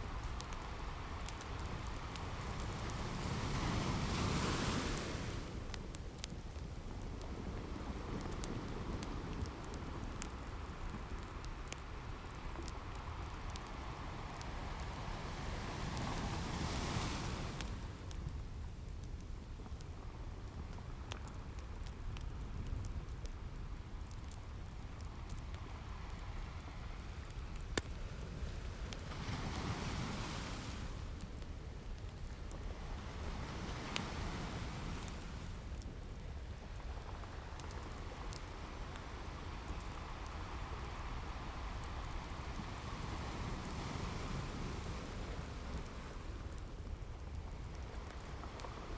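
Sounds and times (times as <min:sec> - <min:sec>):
waves washing on beach: 0:00.0 - 0:18.3, 0:28.0 - 0:47.0, 0:47.6 - 0:48.9
wood fire crackling and popping: 0:00.0 - 0:48.9.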